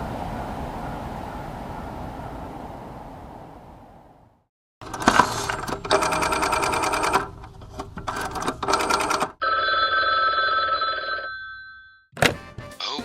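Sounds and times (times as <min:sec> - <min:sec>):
cell phone ringing: 0:08.7 - 0:12.1.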